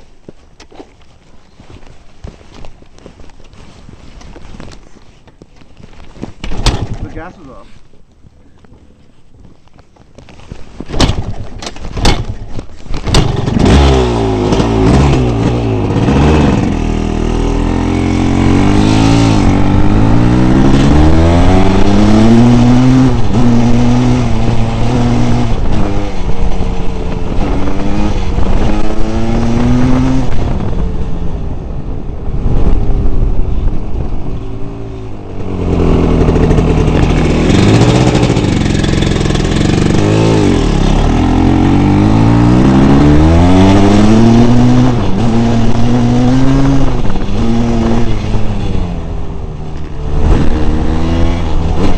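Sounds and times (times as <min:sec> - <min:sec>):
dirt bike engine revving: 0:13.0 - 0:30.8, 0:34.6 - 0:49.3, 0:49.9 - 0:51.9.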